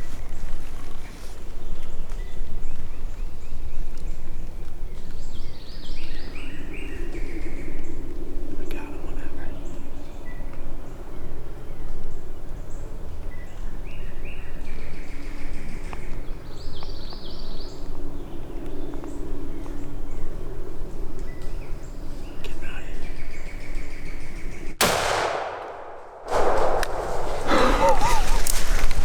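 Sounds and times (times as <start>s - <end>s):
small birds calling: 0.0s - 24.8s, 26.4s - 29.0s
shotgun blast: 24.8s - 28.1s
loud rustling: 26.2s - 29.0s.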